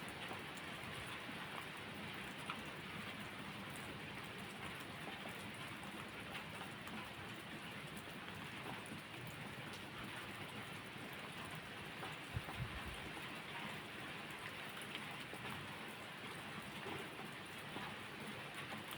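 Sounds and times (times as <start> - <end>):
steady rain: 0.0 - 18.9.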